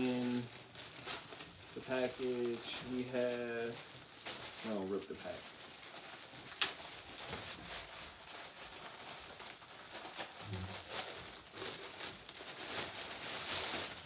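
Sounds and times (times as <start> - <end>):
wrapping crinkling and rustling: 0.0 - 14.0
package being torn open: 8.8 - 14.0.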